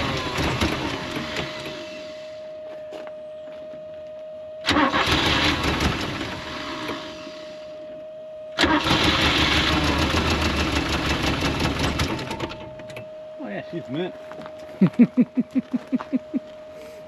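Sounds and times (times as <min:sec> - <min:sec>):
car engine starting and running: 0:00.0 - 0:02.1, 0:04.6 - 0:07.6, 0:08.6 - 0:13.1.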